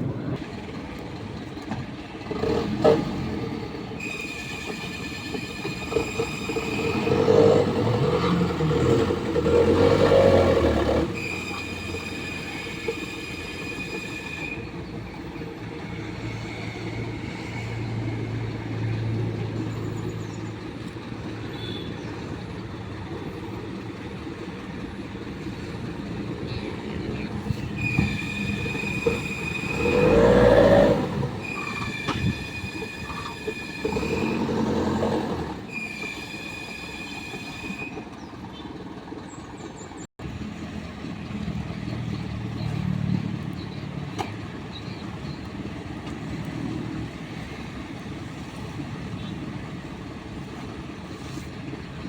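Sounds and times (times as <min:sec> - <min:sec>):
truck engine under load: 0:00.0 - 0:52.0
high-pitched squeal: 0:04.0 - 0:19.2, 0:27.2 - 0:38.2.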